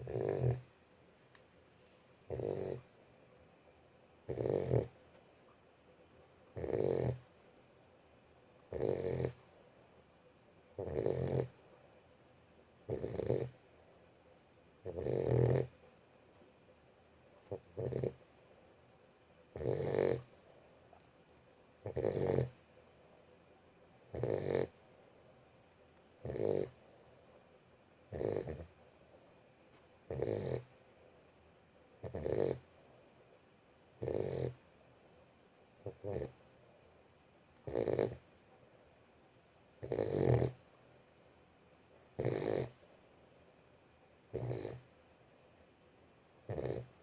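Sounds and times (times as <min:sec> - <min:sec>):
puppy snoring: 0:00.0 - 0:00.8, 0:02.2 - 0:03.0, 0:04.2 - 0:05.1, 0:06.4 - 0:07.4, 0:08.6 - 0:09.6, 0:10.7 - 0:11.7, 0:12.8 - 0:14.0, 0:14.8 - 0:15.9, 0:17.4 - 0:18.3, 0:19.5 - 0:20.7, 0:21.8 - 0:22.6, 0:23.9 - 0:24.9, 0:26.1 - 0:27.3, 0:27.9 - 0:28.9, 0:30.0 - 0:30.8, 0:31.9 - 0:33.0, 0:33.9 - 0:34.7, 0:35.7 - 0:36.4, 0:37.6 - 0:38.3, 0:39.7 - 0:40.7, 0:41.9 - 0:42.8, 0:44.2 - 0:45.0, 0:46.3 - 0:47.0.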